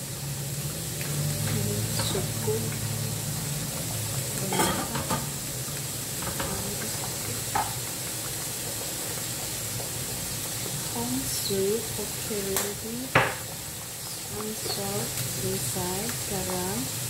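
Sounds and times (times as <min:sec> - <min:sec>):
rice sizzling in a wok: 0:00.0 - 0:17.0.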